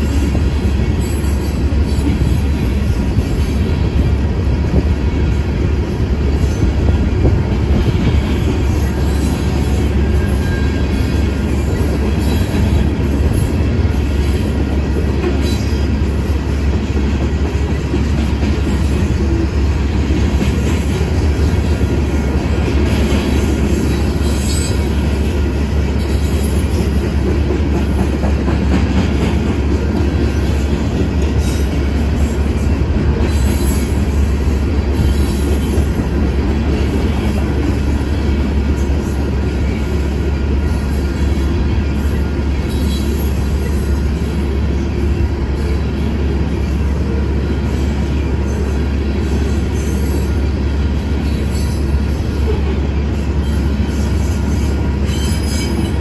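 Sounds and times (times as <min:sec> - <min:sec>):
freight train wheels clattering: 0:00.0 - 0:56.0
wheel squeal: 0:08.7 - 0:11.2.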